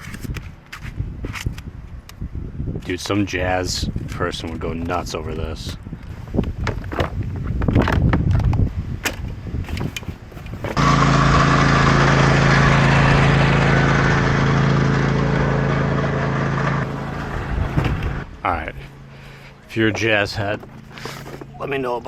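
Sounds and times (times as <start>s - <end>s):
road noise: 0.0s - 22.0s
clicks and knocks of handling: 5.7s - 10.8s
truck engine droning: 10.7s - 21.8s.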